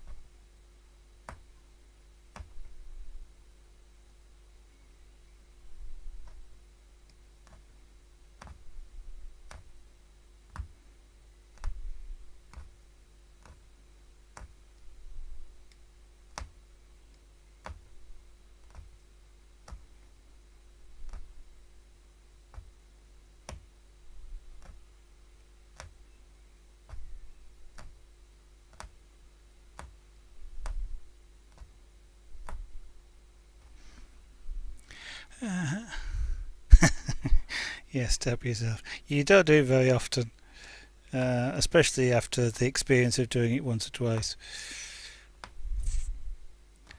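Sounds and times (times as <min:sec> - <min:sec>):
needle punching through fabric: 0:11.5 - 0:12.8, 0:18.6 - 0:18.9, 0:29.8 - 0:32.8.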